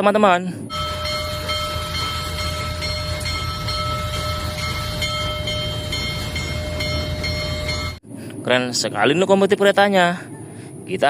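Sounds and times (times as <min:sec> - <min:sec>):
locomotive low rumble: 0:00.6 - 0:09.2
thin high tones: 0:00.7 - 0:08.0.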